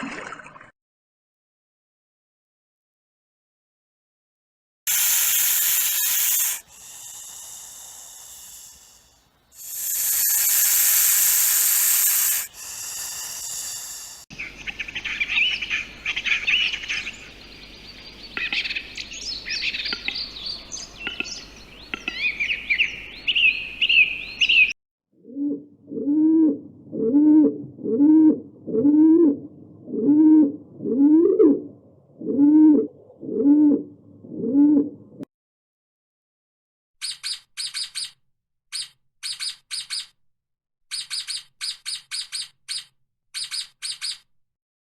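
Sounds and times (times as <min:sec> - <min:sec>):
hissing noise bursts: 0:04.9 - 0:14.3
high bird chirps and song: 0:14.4 - 0:24.8, 0:37.0 - 0:40.1, 0:40.9 - 0:44.3
low cooing call: 0:24.6 - 0:35.2.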